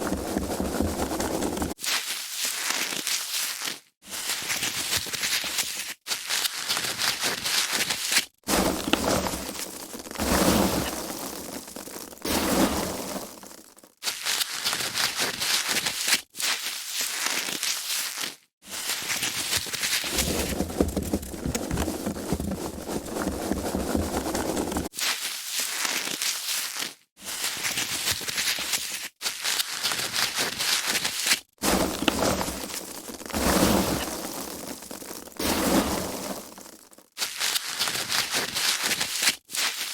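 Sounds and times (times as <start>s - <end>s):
foam packaging squeaking and crinkling: 0.0s - 39.9s.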